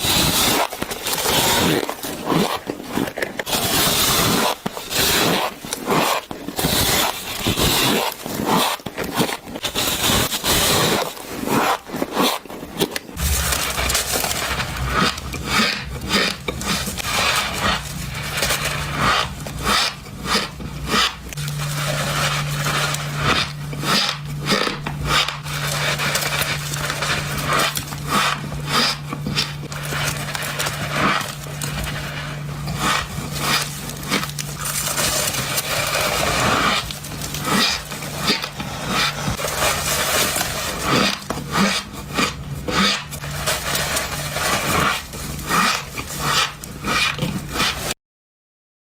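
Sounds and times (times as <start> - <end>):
shaved ice being chewed: 0.0 - 48.0.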